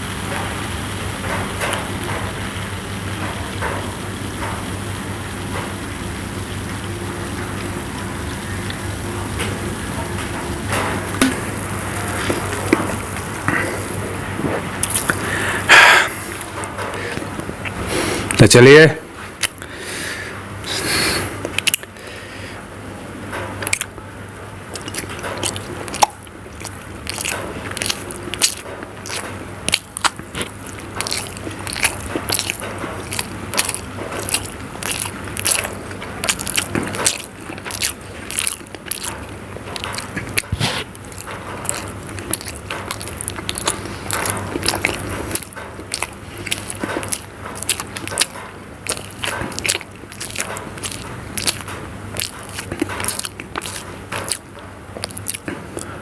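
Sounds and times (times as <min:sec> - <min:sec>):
steady low hum: 0:00.0 - 0:56.0
wet chewing and lip-smacking: 0:11.1 - 0:18.4, 0:19.4 - 0:19.7, 0:20.7 - 0:22.0, 0:23.6 - 0:24.0, 0:24.6 - 0:56.0.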